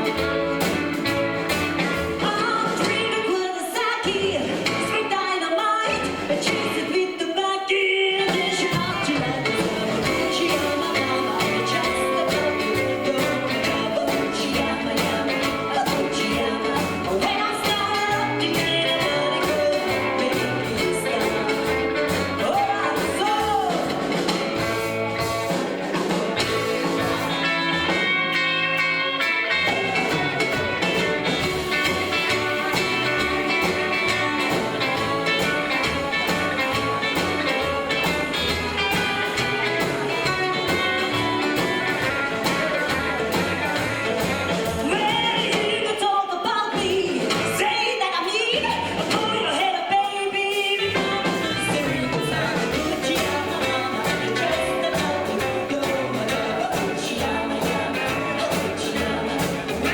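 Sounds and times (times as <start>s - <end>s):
drums: 0.0s - 59.9s
guitar: 0.0s - 59.9s
person singing: 1.8s - 25.0s, 26.0s - 59.9s
pulsing bass: 8.8s - 45.1s, 50.9s - 59.9s.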